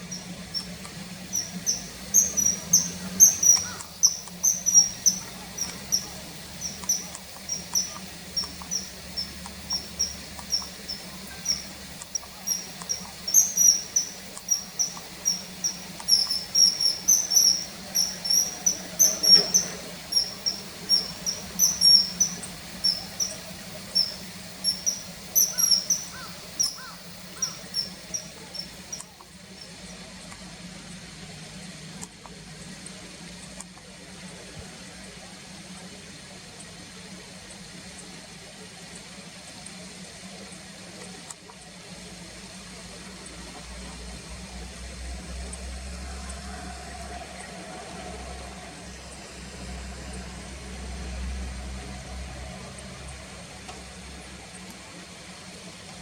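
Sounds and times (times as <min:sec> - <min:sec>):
bird high whistled calls: 0:00.0 - 0:29.2.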